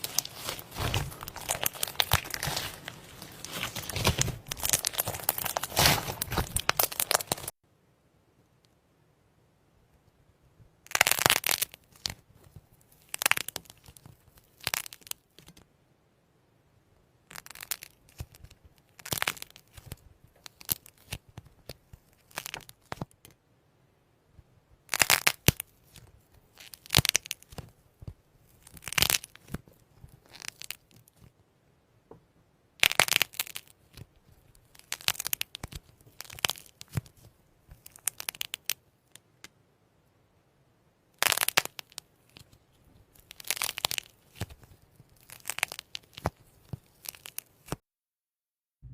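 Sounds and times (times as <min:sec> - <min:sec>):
slime crackling and popping: 0:00.0 - 0:07.6, 0:10.9 - 0:12.3, 0:12.9 - 0:15.6, 0:17.3 - 0:23.2, 0:24.9 - 0:27.7, 0:28.5 - 0:31.3, 0:32.8 - 0:38.8, 0:41.2 - 0:47.8.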